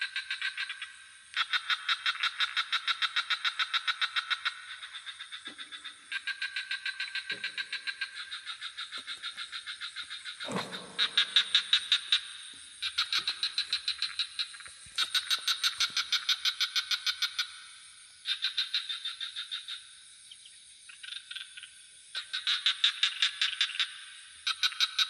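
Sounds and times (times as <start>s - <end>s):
frogs calling in pulsed trills: 0.0s - 25.0s.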